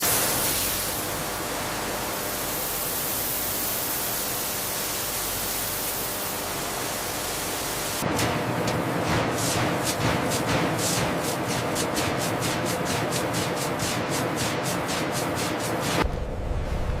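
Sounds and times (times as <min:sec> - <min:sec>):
steady static hiss: 0:00.0 - 0:08.9.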